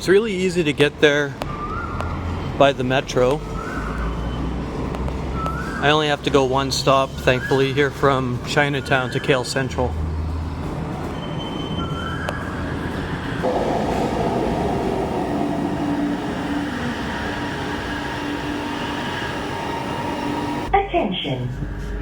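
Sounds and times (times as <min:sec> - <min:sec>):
electric train rumbling: 0:09.8 - 0:20.8
whining tones: 0:12.2 - 0:20.7.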